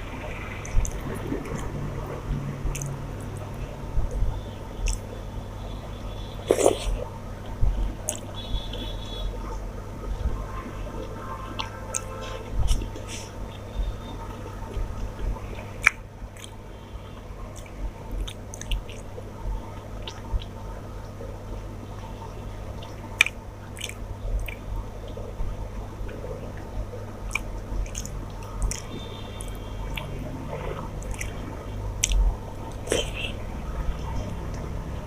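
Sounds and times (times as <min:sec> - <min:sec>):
steady low hum: 0:00.0 - 0:35.0
person chewing with wet smacking: 0:00.2 - 0:05.2, 0:06.4 - 0:09.6, 0:11.0 - 0:16.6, 0:17.4 - 0:21.2, 0:22.7 - 0:34.8
mouth clicks: 0:04.8 - 0:05.1, 0:32.0 - 0:34.7.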